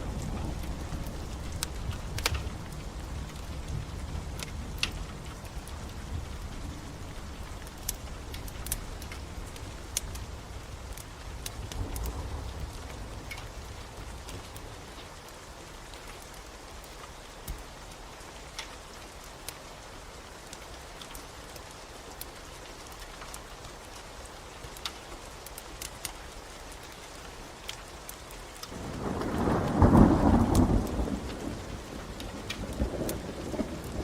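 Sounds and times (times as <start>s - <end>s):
log fire crackling: 0.0s - 34.0s
steady rain: 0.0s - 34.0s
low roll of thunder: 28.7s - 34.0s.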